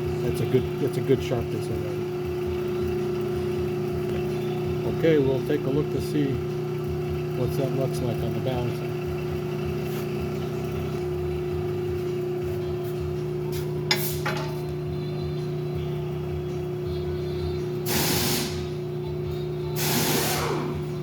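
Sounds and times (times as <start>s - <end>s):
sharpener motor humming: 0.0s - 15.6s, 19.6s - 21.0s
short hiss: 17.9s - 18.7s.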